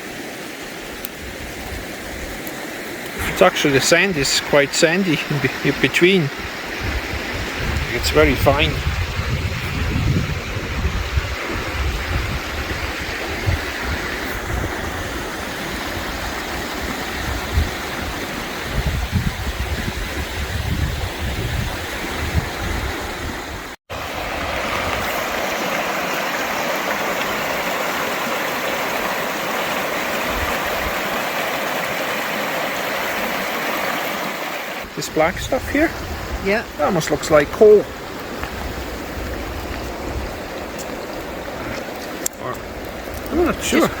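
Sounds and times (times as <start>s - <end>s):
river water rushing: 0.0s - 9.2s, 9.8s - 18.9s, 21.7s - 44.0s
wind buffeting microphone: 6.3s - 25.5s, 34.8s - 44.0s.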